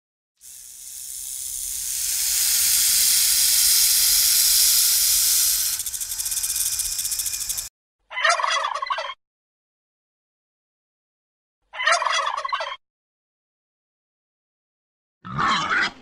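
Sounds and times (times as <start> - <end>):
animal hissing and rattling: 0.4 - 7.7.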